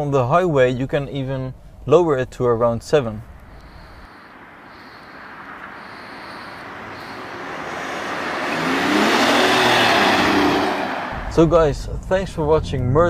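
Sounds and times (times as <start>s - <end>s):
car approaching: 3.1s - 13.0s.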